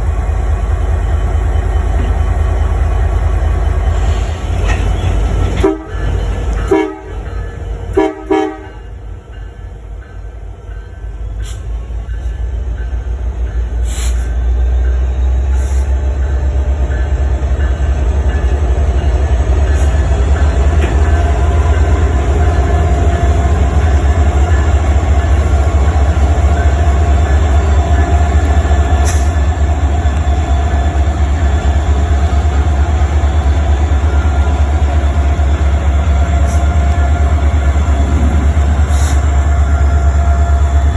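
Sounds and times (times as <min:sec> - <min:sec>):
horn blasts: 0:05.0 - 0:08.9.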